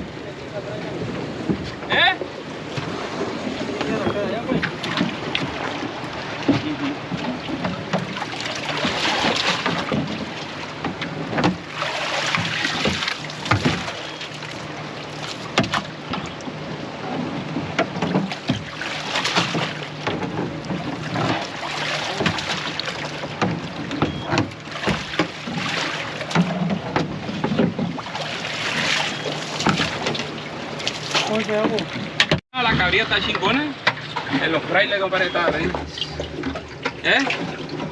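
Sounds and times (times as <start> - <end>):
boat motor hum: 0.0 - 37.9
rushing water: 0.0 - 37.9.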